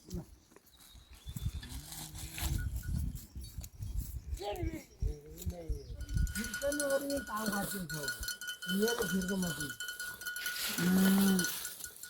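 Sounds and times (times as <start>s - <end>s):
livestock bell ringing: 6.0s - 12.0s.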